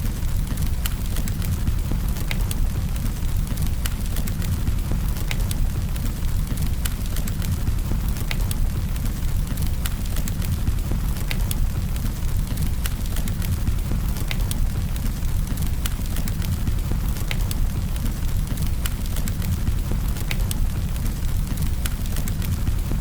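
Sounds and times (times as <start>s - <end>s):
burning wood crackling and popping: 0.0s - 23.0s
campfire flames rumbling: 0.0s - 23.0s.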